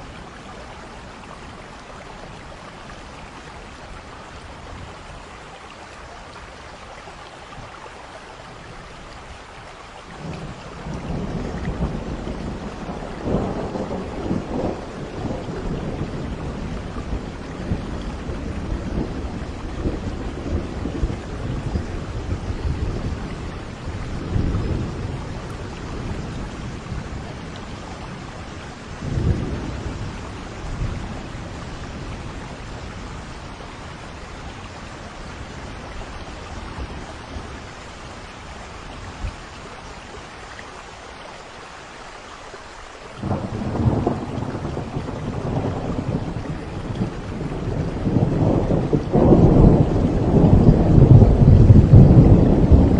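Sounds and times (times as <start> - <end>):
steady rain: 0.0 - 52.9
thunder rumbling: 10.2 - 38.2, 43.2 - 52.9.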